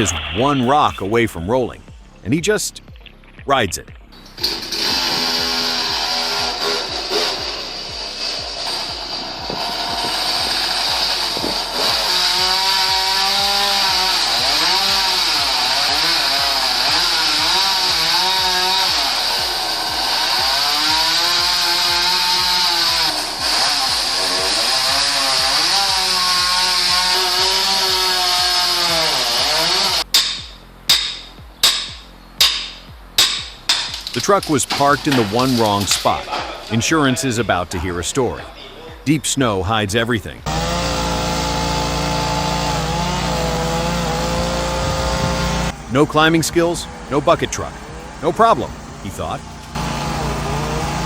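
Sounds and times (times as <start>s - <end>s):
chainsaw revving and cutting: 4.4s - 36.8s, 40.4s - 51.0s
sharp knocks: 30.0s - 36.5s.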